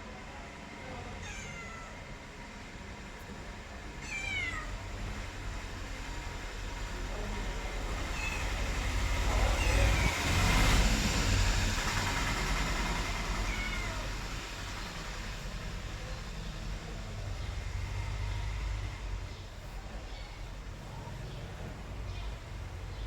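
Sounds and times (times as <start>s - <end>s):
cat meowing: 1.1s - 2.2s, 4.0s - 4.9s, 8.1s - 8.7s, 9.3s - 10.3s, 13.2s - 14.6s
low rumbling noise: 4.6s - 23.0s.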